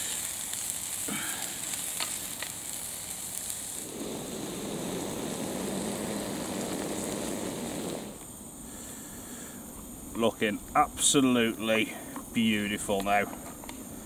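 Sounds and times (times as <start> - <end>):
food sizzling in a pan: 0.0 - 8.5
low steady rushing noise: 3.6 - 12.9.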